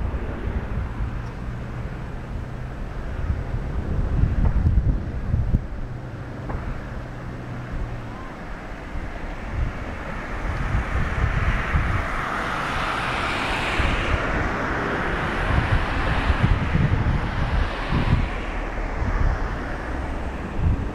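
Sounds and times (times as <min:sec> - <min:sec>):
distant jet roar: 0:00.0 - 0:20.9
wind gusting on microphone: 0:00.0 - 0:20.9.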